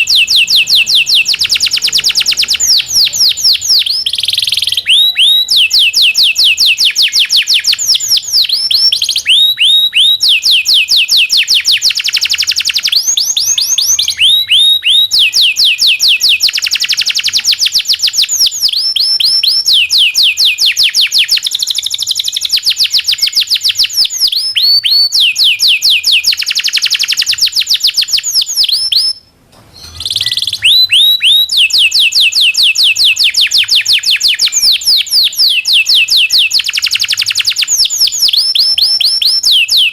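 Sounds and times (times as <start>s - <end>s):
canary singing rolls: 0.0s - 6.2s, 27.6s - 35.6s.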